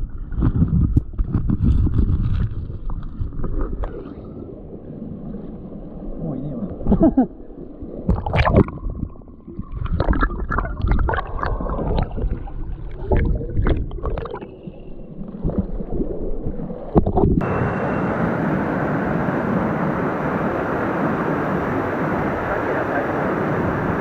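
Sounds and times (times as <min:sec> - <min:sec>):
stream water gurgling and splashing: 0:00.0 - 0:24.0
flowing stream water rushing: 0:17.4 - 0:24.0.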